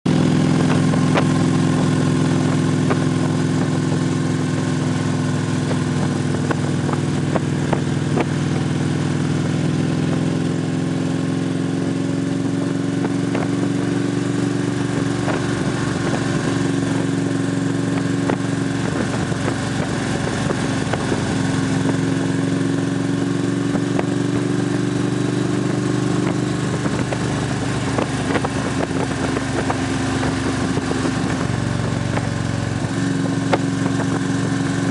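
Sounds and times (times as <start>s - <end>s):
motorcycle engines idling steadily: 0.1s - 34.9s.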